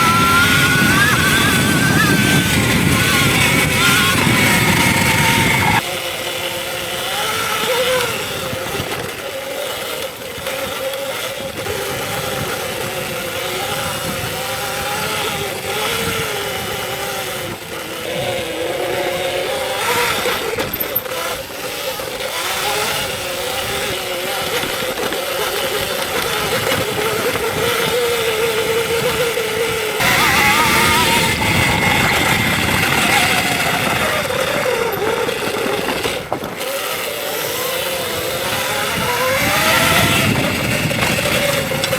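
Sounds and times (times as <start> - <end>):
electric motor whine: 0.0 - 41.9
wind and tyre noise: 0.0 - 41.9.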